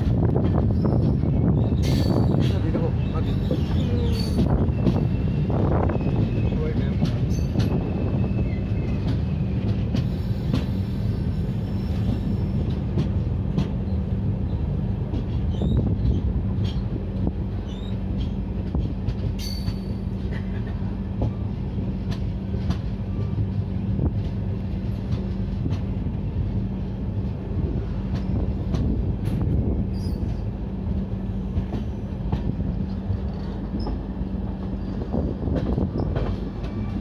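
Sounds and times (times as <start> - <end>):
train rumble from inside coach: 0.0 - 37.0.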